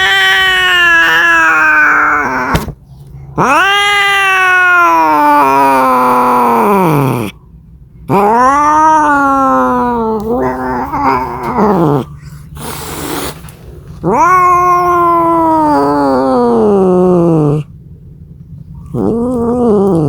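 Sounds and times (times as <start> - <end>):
cat yowling: 0.0 - 7.4, 8.1 - 13.2, 14.0 - 17.7, 18.8 - 20.0
short breathy burst: 12.2 - 13.7.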